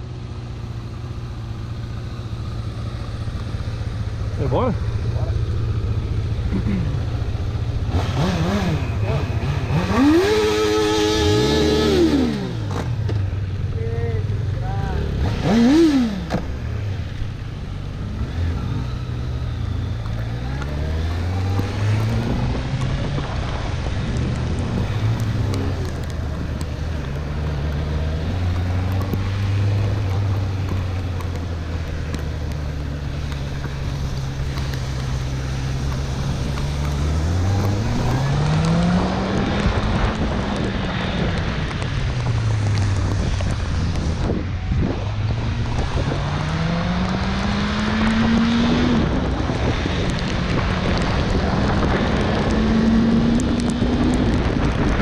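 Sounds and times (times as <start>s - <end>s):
motorcycle engine shifting gears: 0.5s - 14.4s, 15.0s - 55.0s
wind noise: 18.0s - 55.0s.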